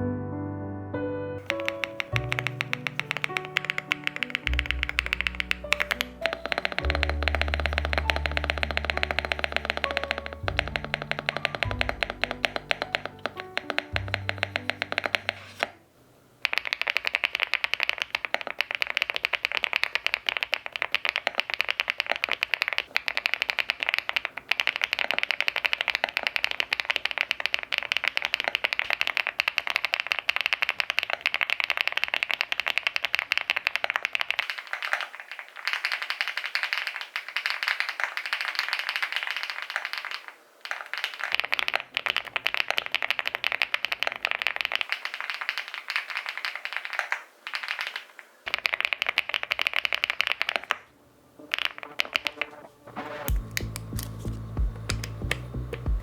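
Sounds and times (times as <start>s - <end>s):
background music: 0.0s - 15.8s, 51.0s - 56.0s
fast keyboard typing: 1.4s - 15.8s, 16.4s - 52.6s, 53.3s - 56.0s.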